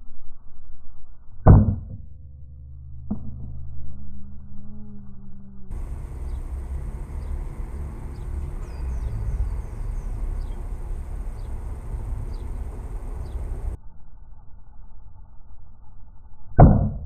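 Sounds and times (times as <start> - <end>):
low rumble: 0.0 - 17.0
faint high whine: 2.1 - 16.6
bird falling chirps: 5.7 - 13.8.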